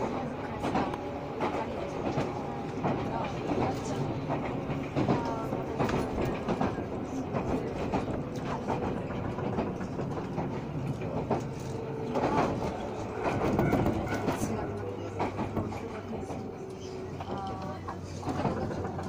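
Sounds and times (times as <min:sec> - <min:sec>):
train rolling rumble: 0:00.0 - 0:19.0
wheels clicking over rail joints: 0:00.1 - 0:19.0.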